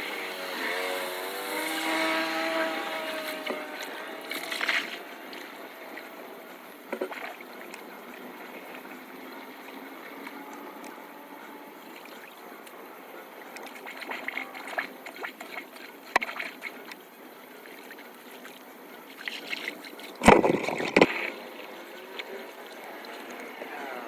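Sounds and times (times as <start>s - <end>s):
water trickling and gurgling: 0.4s - 24.0s
clicks and knocks: 20.2s - 21.3s.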